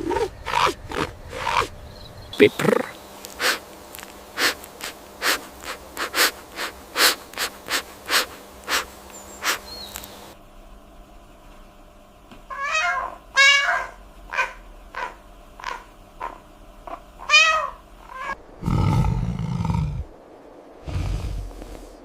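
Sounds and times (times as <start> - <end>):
young animal crying and squeaking: 12.5 - 18.4
low rough growl: 18.6 - 20.2, 20.8 - 22.0.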